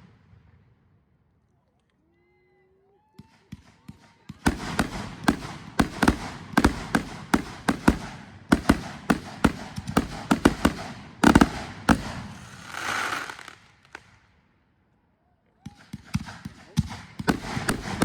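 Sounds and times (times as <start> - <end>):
fireworks bangs: 3.5 - 14.2, 15.9 - 18.0
hissing crackle: 12.4 - 14.0.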